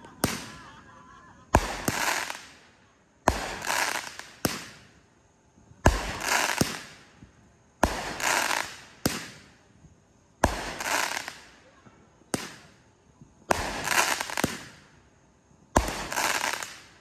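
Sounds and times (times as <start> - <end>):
fireworks bangs: 0.0 - 5.0, 5.8 - 9.6, 10.4 - 11.7, 12.3 - 12.8, 13.4 - 15.0, 15.7 - 17.0
fireworks crackling hiss: 0.0 - 17.0.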